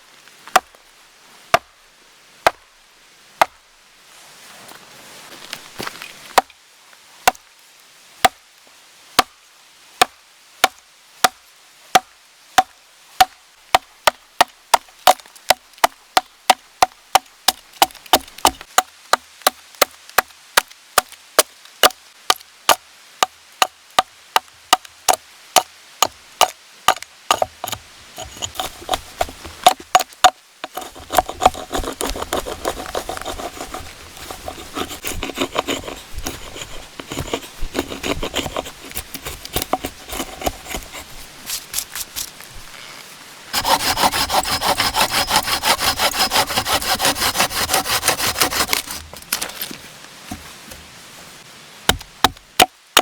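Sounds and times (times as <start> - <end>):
scraping and rustling: 27.3 - 30.0, 30.6 - 51.4.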